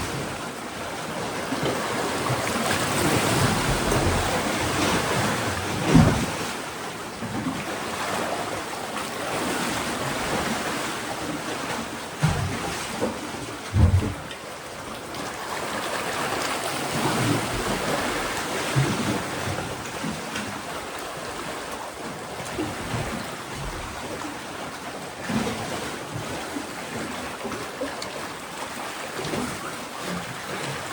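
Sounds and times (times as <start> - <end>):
sea waves washing on rocks: 0.0 - 30.9
low thump: 13.7 - 14.3.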